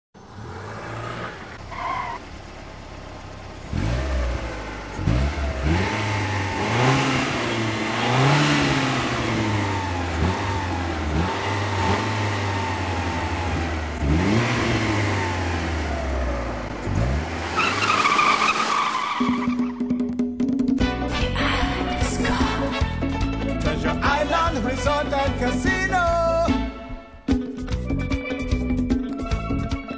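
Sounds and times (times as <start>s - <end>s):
car engines revving: 0.2s - 19.9s.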